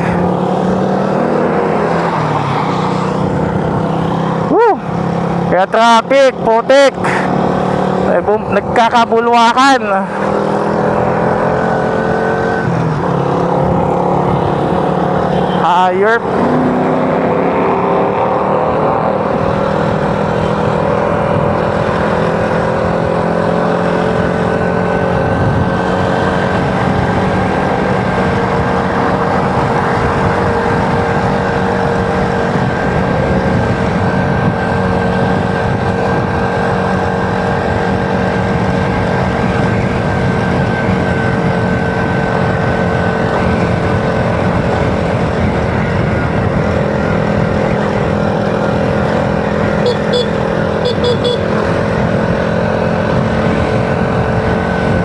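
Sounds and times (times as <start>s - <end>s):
road and wind noise: 0.0s - 55.0s
motorcycle engine running: 18.6s - 55.0s.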